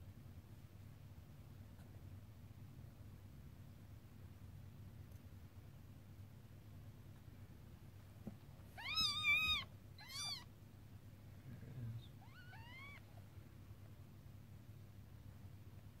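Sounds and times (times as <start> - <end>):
kitten mewing: 8.8 - 10.5, 12.0 - 13.2.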